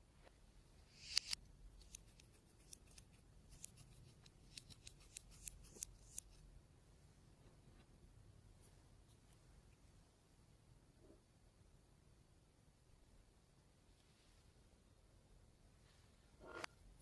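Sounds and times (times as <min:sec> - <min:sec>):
sharp ticks: 0:01.0 - 0:06.3
faint clicks and crackles: 0:01.0 - 0:06.4.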